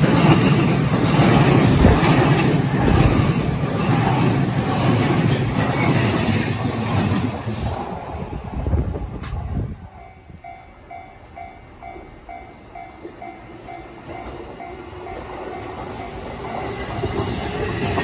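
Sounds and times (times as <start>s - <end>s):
wheels clicking over rail joints: 0.0s - 7.8s
train wheels rumbling on rails: 0.0s - 18.0s.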